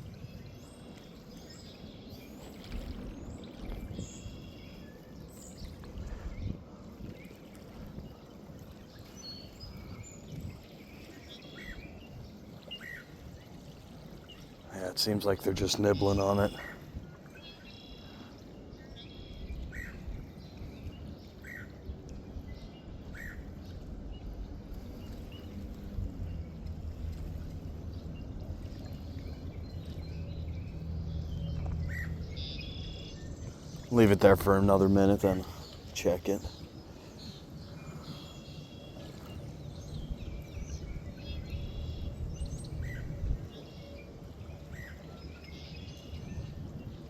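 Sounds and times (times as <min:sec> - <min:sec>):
steady low rumble: 0:18.8 - 0:45.5.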